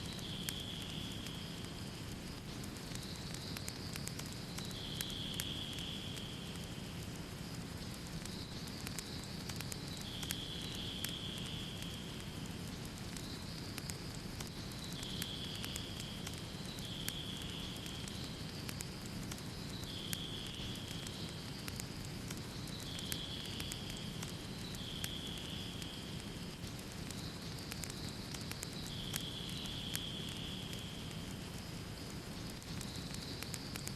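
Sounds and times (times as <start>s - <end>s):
wood fire crackling and popping: 0.0s - 33.9s.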